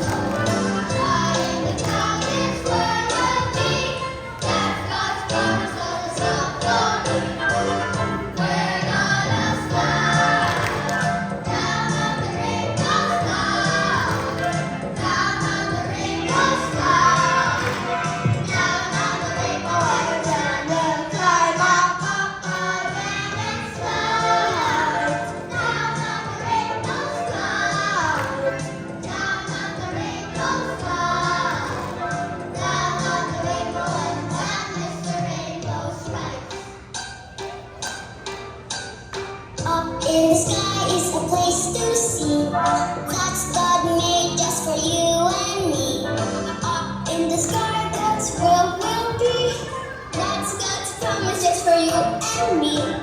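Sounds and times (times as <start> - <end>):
choir singing: 0.0 - 36.6
children's song with steady beat: 0.0 - 53.0
musical accompaniment: 0.0 - 53.0.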